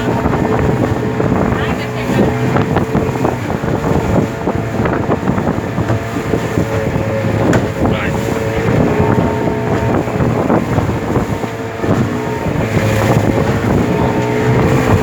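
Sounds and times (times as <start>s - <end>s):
hull knocking on water: 0.0s - 15.0s
motorboat engine running: 0.0s - 15.0s
wind buffeting microphone: 0.0s - 15.0s.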